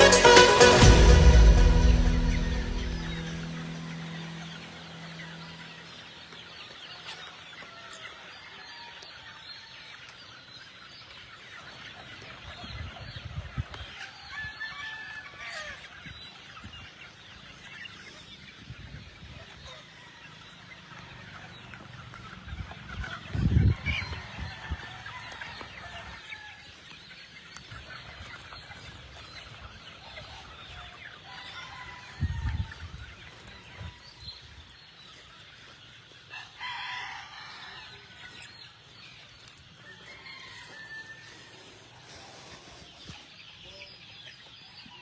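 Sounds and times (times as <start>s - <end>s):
loud low thumps: 0.0s - 5.4s
chickens clucking: 0.0s - 45.0s
rooster crowing: 23.3s - 26.8s, 31.2s - 34.6s, 36.3s - 38.6s, 39.8s - 41.9s.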